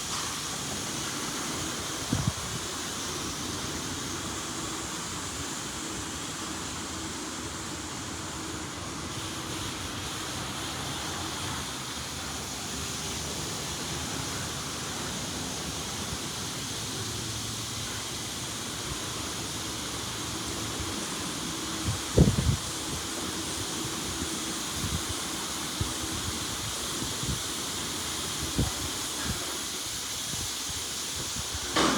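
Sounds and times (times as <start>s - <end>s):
water spraying over car: 0.0s - 31.9s.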